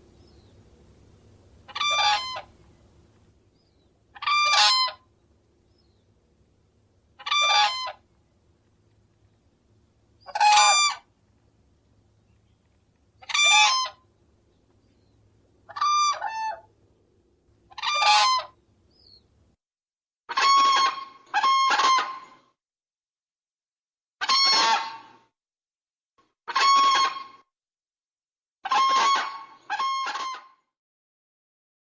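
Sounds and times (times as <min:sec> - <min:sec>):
crane calling: 0:00.0 - 0:11.2, 0:11.8 - 0:16.9, 0:17.6 - 0:19.4.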